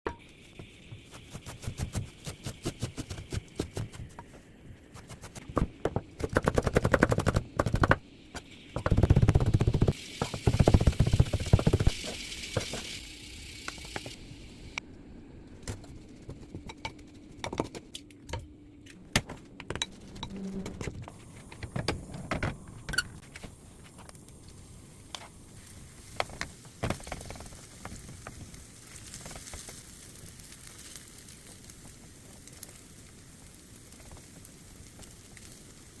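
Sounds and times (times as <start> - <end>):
rapid chopping strokes: 0.9 - 4.3, 4.9 - 8.0.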